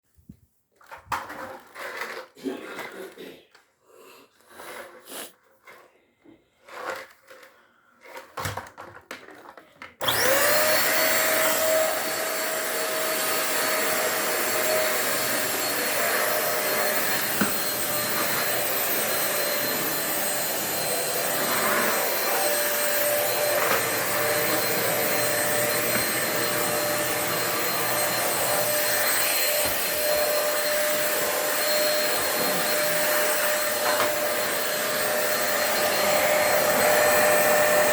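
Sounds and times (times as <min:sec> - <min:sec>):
vacuum cleaner running with high whine: 0:10.0 - 0:37.9.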